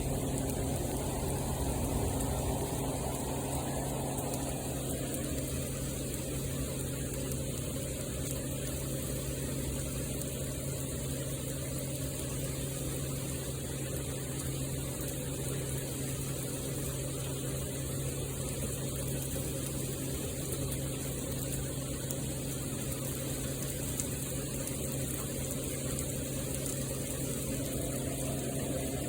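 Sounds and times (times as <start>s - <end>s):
low hum: 0.0s - 8.7s, 26.0s - 29.0s
steady rain falling: 0.0s - 29.0s.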